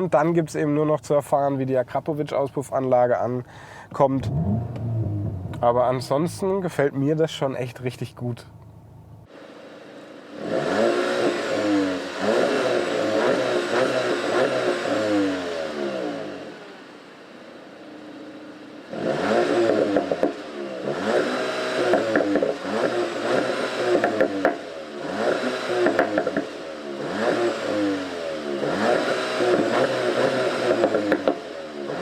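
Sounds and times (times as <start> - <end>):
exhaust pops and crackles: 3.4 - 6.7, 19.5 - 26.6, 28.4 - 31.5
car engine accelerating hard: 4.1 - 6.1, 8.9 - 32.0.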